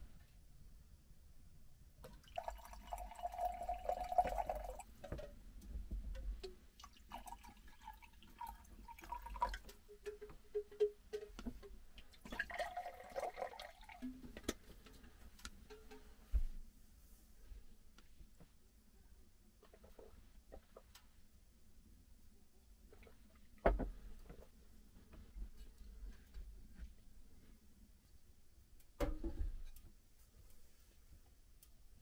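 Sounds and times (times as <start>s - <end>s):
water pouring into container: 2.0s - 4.9s, 6.8s - 9.7s, 12.1s - 14.1s
small knocks and clicks: 9.5s - 12.1s, 14.1s - 16.5s.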